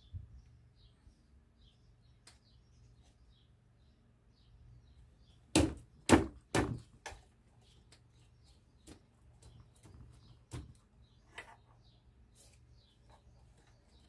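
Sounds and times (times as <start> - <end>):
sharp knocks: 5.5 - 6.9.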